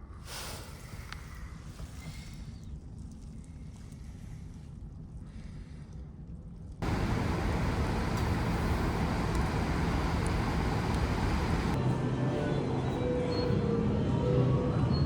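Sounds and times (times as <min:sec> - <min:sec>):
car road and tyre noise: 0:06.8 - 0:11.8
low rumble: 0:06.8 - 0:11.8.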